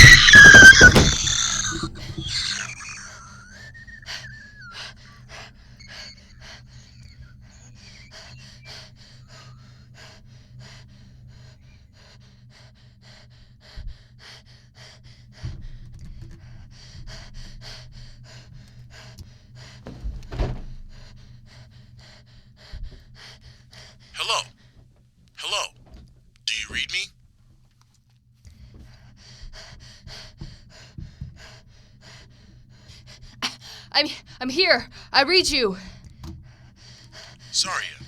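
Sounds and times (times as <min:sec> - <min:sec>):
dull thumps: 0:00.0 - 0:05.2
person panting: 0:00.5 - 0:11.4.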